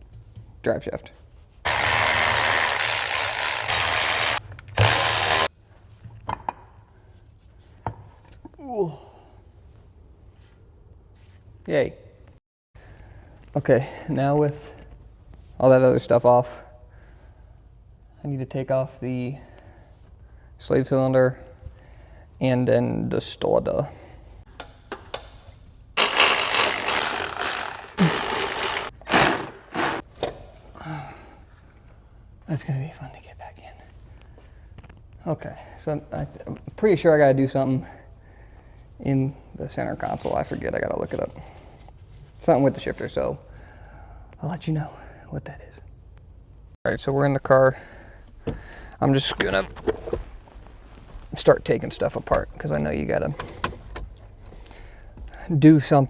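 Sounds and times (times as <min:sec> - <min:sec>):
power tool running: 0:01.7 - 0:05.5, 0:26.0 - 0:30.0.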